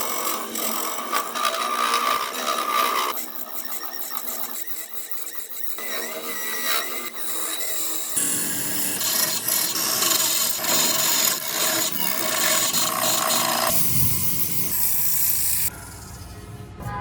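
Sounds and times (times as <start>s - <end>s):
rough rasping on wood: 8.2s - 15.7s.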